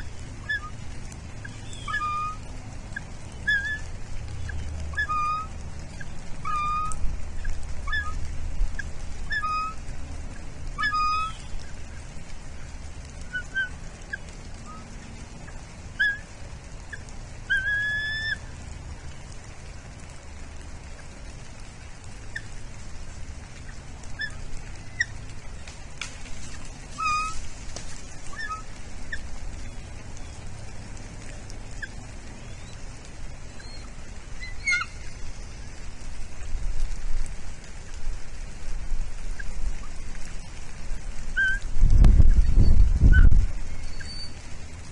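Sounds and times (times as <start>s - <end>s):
low steady rumble: 0.0s - 44.9s
eagles chirping: 27.0s - 27.5s, 33.6s - 35.2s.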